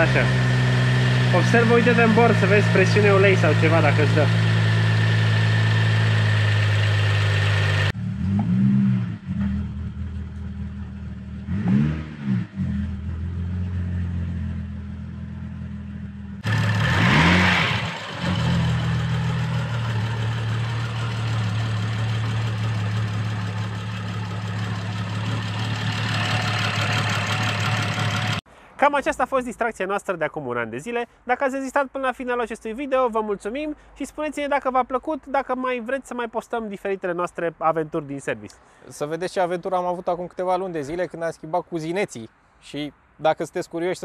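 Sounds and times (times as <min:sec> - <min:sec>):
car engine idling and revving: 0:00.0 - 0:28.4.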